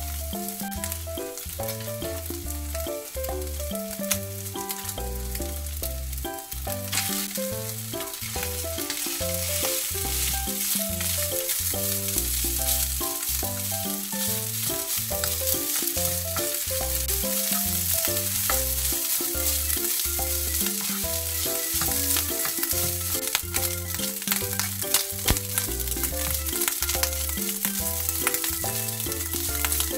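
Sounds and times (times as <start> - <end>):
background music with bass line: 0.0 - 29.9
oil sizzling in frying pan: 0.0 - 29.9
spatula stirring rice: 6.9 - 29.9.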